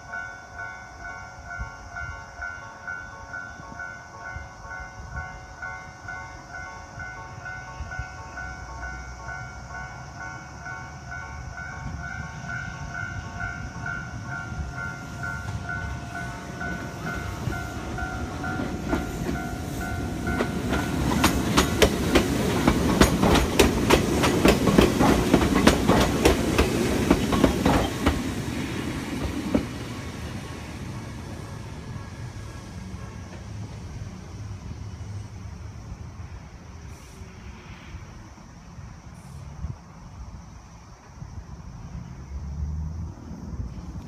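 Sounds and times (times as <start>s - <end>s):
train rumbling past: 0.0s - 44.0s
level crossing alarm ringing: 2.0s - 21.7s
wheels clacking over rail joints: 14.5s - 32.0s.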